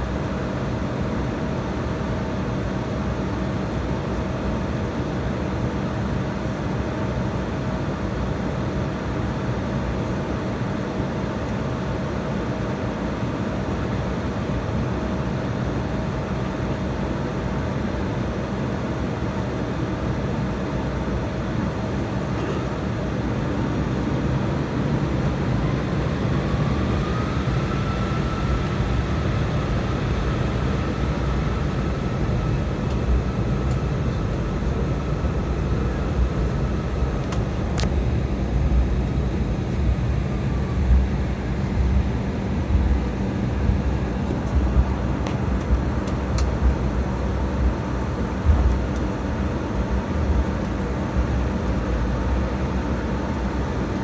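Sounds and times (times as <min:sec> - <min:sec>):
jet engine hum: 0:00.0 - 0:54.0
thin engine whine: 0:21.8 - 0:53.8.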